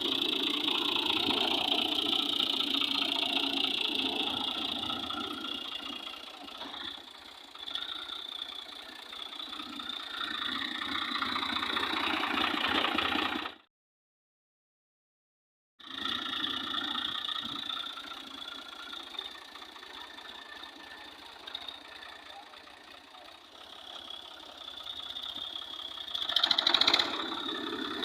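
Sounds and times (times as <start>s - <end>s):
tractor engine running: 0.0s - 13.7s, 15.8s - 28.0s.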